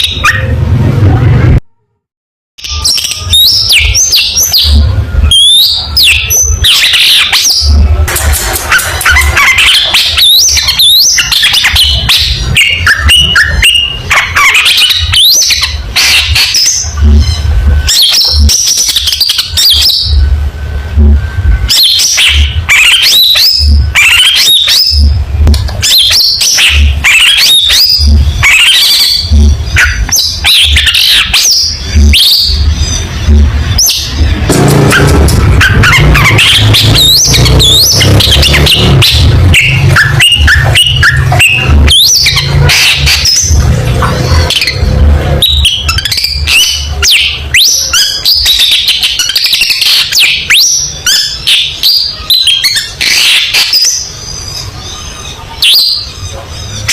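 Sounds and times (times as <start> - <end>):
low pulsing hum: 27.8 - 47.0.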